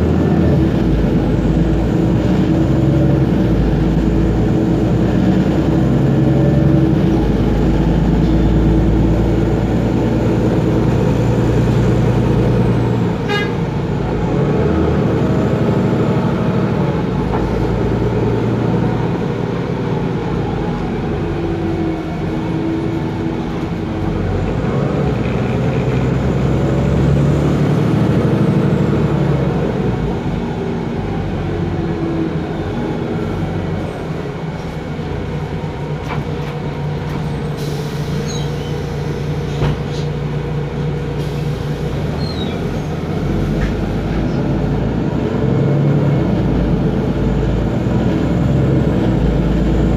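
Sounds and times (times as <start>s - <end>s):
bus diesel engine: 0.0s - 49.9s.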